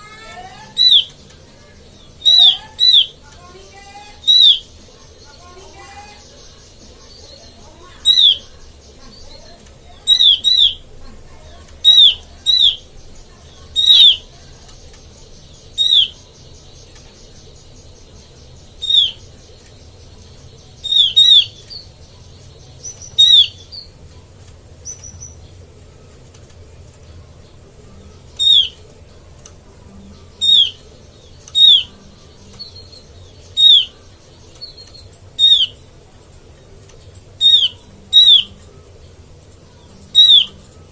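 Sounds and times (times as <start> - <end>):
bird sharp downward calls: 0.0 - 8.7, 9.4 - 10.9, 11.8 - 13.0, 13.8 - 14.4, 15.6 - 16.4, 18.6 - 19.4, 20.8 - 21.9, 22.8 - 24.0, 28.1 - 29.0, 30.3 - 35.8, 37.4 - 38.8, 39.9 - 40.9.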